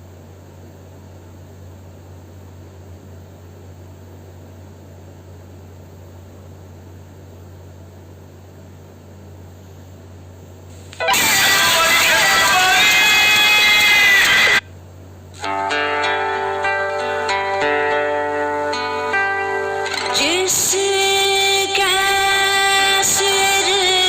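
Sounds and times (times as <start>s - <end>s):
faint hiss: 10.6s - 11.6s
loud music: 11.0s - 14.6s, 15.4s - 24.0s.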